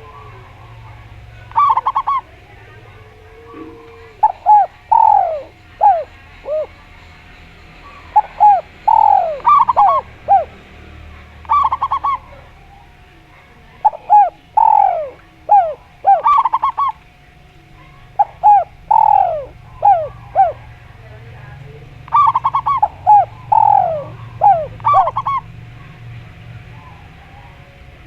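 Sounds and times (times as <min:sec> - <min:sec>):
doves cooing: 0:00.0 - 0:28.0.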